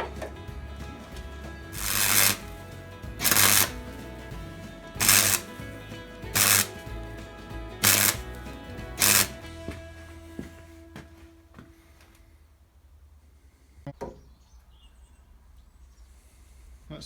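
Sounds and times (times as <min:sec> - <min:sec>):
background music: 0:00.0 - 0:11.6
welding crackle: 0:01.8 - 0:02.5, 0:03.2 - 0:03.8, 0:05.0 - 0:05.6, 0:06.3 - 0:06.8, 0:07.8 - 0:08.3, 0:09.0 - 0:09.4.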